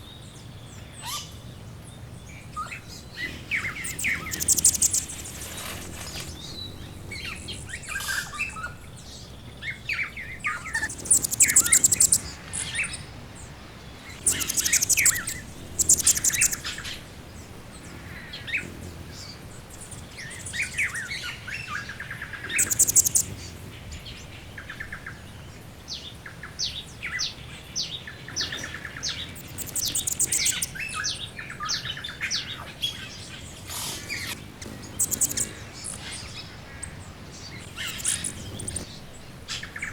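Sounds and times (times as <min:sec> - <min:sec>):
songbirds chirping and whistling: 0:00.0 - 0:39.9
high buzzy bird trill: 0:02.6 - 0:23.6, 0:28.5 - 0:30.8, 0:33.4 - 0:38.9.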